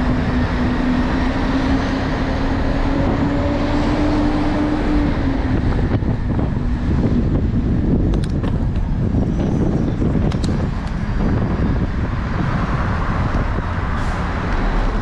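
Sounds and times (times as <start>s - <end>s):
city traffic: 0.0s - 15.0s
wind rumbling on microphone: 0.0s - 15.0s.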